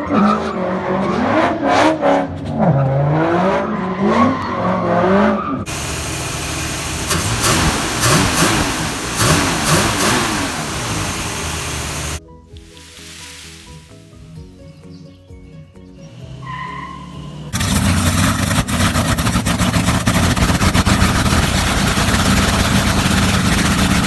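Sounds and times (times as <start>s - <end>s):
car engine revving: 0.0s - 12.2s, 16.2s - 24.0s
hissy engine revved at throttle: 5.7s - 12.2s.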